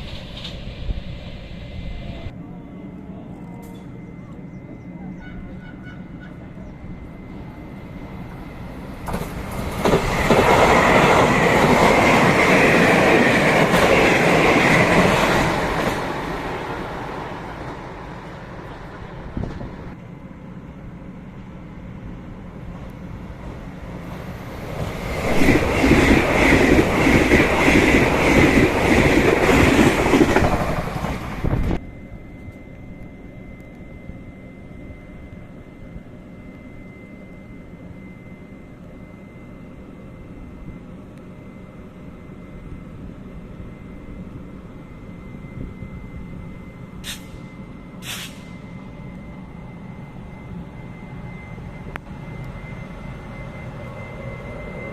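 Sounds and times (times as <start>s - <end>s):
train clattering over rails: 8.8s - 20.0s, 23.4s - 31.8s.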